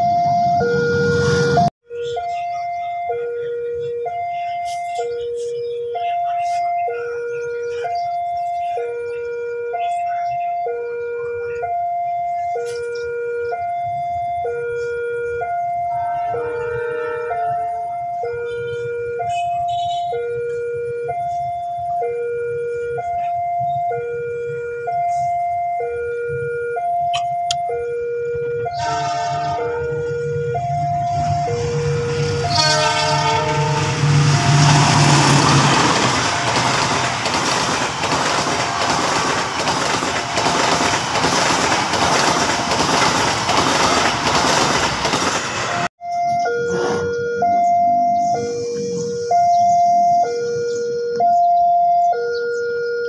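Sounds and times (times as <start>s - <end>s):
two-tone crossing alarm: 0.0s - 53.0s
train horn: 16.0s - 17.8s, 28.7s - 30.4s, 31.1s - 35.7s
train carriages clattering past: 31.1s - 45.9s.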